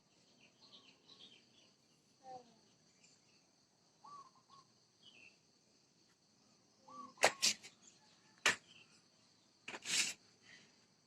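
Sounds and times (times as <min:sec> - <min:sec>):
distant bird calls: 0:00.0 - 0:05.4, 0:06.8 - 0:10.1
faint insect chirring: 0:00.0 - 0:11.0.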